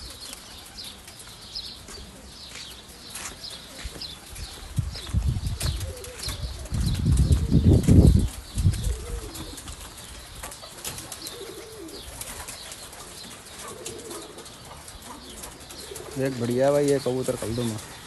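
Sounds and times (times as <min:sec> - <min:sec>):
pigeons cooing: 0:00.0 - 0:18.0
wings flapping: 0:02.8 - 0:17.0.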